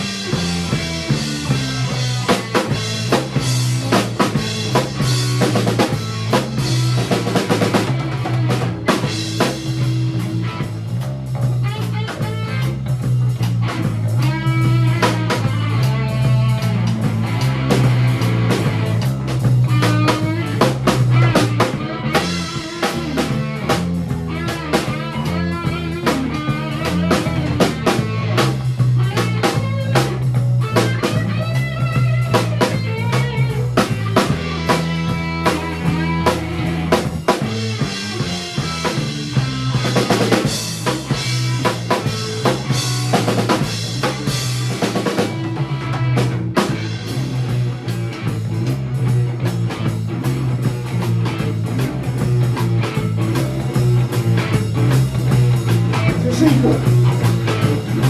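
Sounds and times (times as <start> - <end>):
bass guitar: 0.0 - 58.0
drum kit beat: 0.0 - 58.0
electric guitar lead: 0.0 - 58.0.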